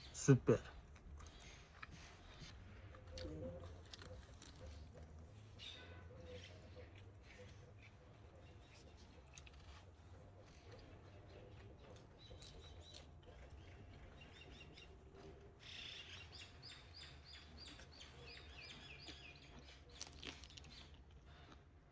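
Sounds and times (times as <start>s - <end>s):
faint bird chirps: 10.5s - 21.5s.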